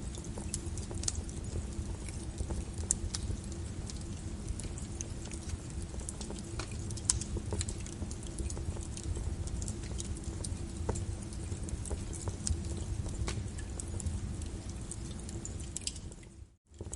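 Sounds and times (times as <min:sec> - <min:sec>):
low rumble of flames: 0:00.0 - 0:16.9
wood fire crackling: 0:00.0 - 0:16.9.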